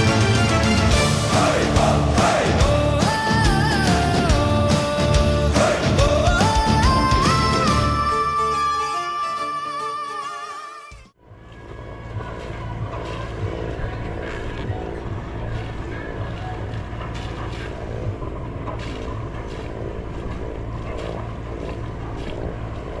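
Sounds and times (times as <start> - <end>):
water splashing against hull: 11.8 - 23.0.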